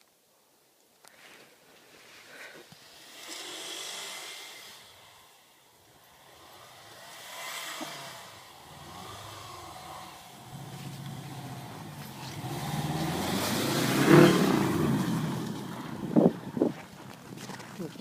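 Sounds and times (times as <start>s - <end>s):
faint car engine: 2.0s - 18.0s
hiss: 2.1s - 5.5s, 6.3s - 10.2s.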